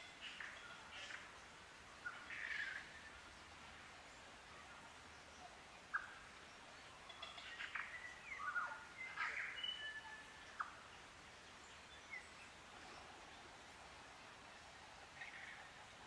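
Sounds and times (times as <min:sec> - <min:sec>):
faint forest background: 0:00.0 - 0:16.0.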